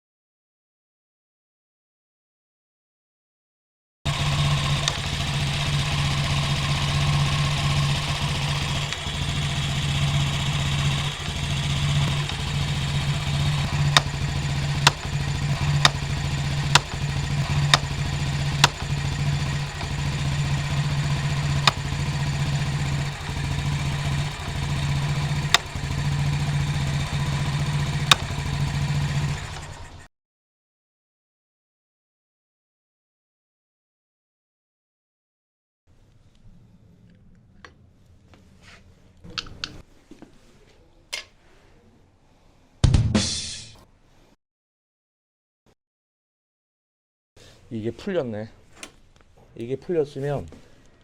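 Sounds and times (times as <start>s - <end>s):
motorcycle engine idling unevenly: 4.1s - 30.1s
sharp metallic ticks in engine: 4.1s - 30.1s.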